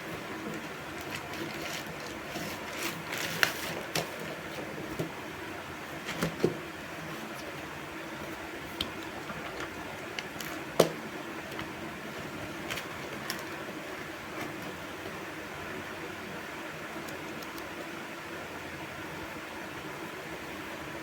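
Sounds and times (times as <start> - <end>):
steady background noise: 0.0 - 21.0
paper rustling: 0.4 - 5.1.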